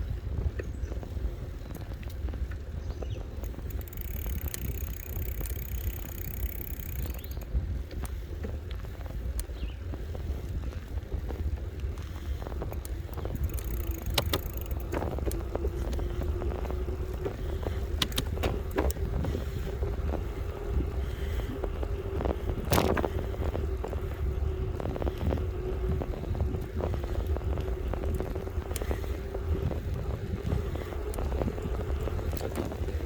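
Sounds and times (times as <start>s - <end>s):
wind and road rumble: 0.0s - 33.0s
rattles and clicks: 3.0s - 8.1s, 12.0s - 19.3s.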